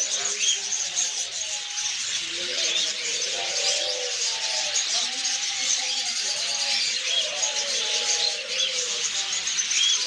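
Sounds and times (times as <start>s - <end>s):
caged birds chirping: 0.0s - 10.0s.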